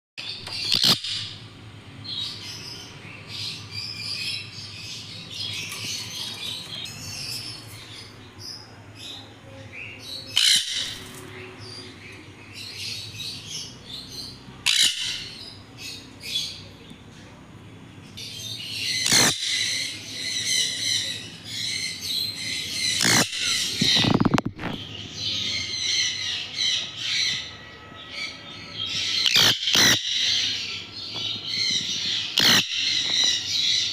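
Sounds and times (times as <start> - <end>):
baby parrots chirping: 0.4 - 1.4, 10.2 - 12.0, 12.6 - 16.6, 18.2 - 33.9
loud parrot squawks: 0.6 - 1.4, 10.4 - 11.0, 14.6 - 15.4, 18.8 - 21.1, 22.5 - 24.1, 29.0 - 30.7, 32.1 - 33.8.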